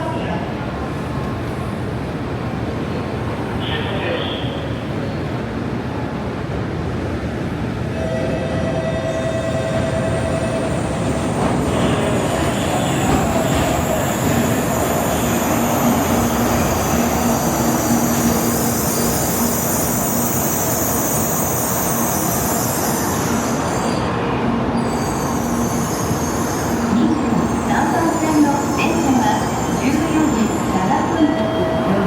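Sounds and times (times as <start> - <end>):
train rumbling and rushing: 0.0 - 32.0
train whine: 6.5 - 32.0.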